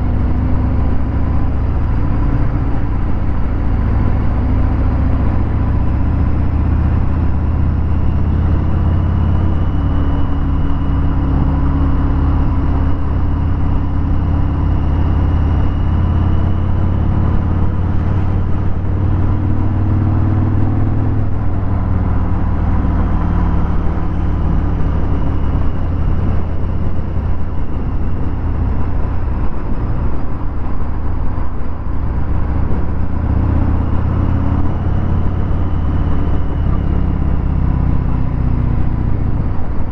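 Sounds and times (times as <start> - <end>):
motorcycle engine rumbling: 0.0 - 39.9.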